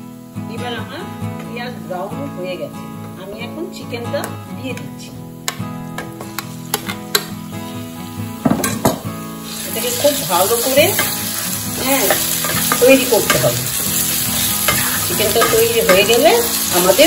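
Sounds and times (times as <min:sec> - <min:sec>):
knocks in a pan: 0:05.4 - 0:07.4, 0:08.4 - 0:09.1
chicken sizzling in oil: 0:05.4 - 0:17.0
wooden spatula scraping a pan: 0:11.8 - 0:16.0.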